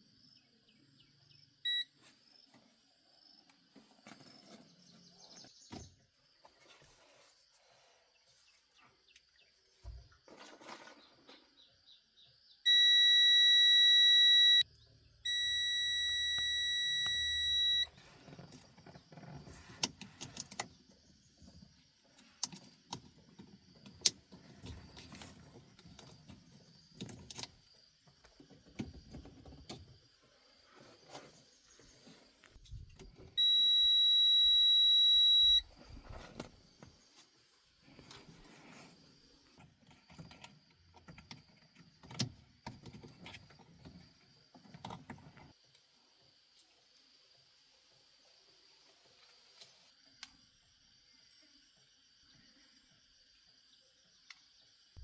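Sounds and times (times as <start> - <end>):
electronic buzzer tone: 1.7 - 1.9, 12.7 - 14.6, 15.2 - 17.9, 33.4 - 35.6.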